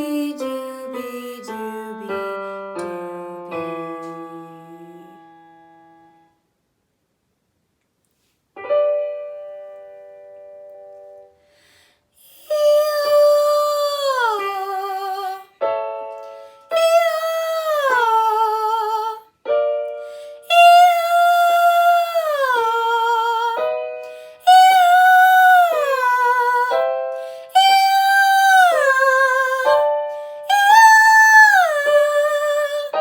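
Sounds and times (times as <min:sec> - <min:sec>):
girl singing wordless notes: 0:00.0 - 0:05.7, 0:12.2 - 0:33.0
piano chord: 0:08.6 - 0:11.6.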